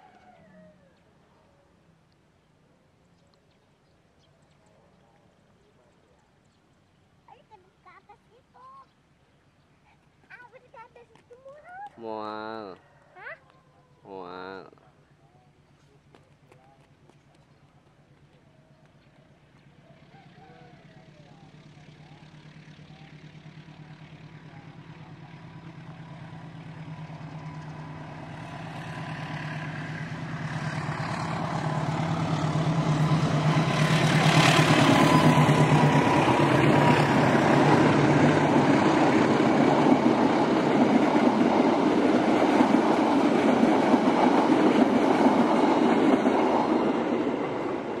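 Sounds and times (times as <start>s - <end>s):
diesel locomotive engine drone: 14.3s - 48.0s
wheel and rail noise: 14.8s - 48.0s.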